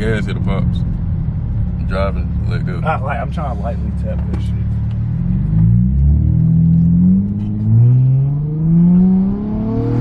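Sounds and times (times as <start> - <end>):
car engine accelerating: 3.9 - 10.0.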